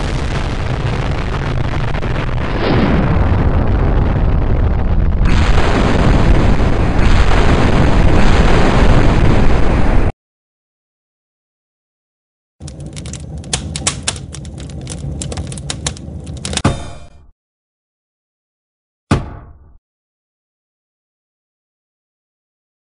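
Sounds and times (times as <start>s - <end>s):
explosion-like roaring: 0.0s - 10.1s.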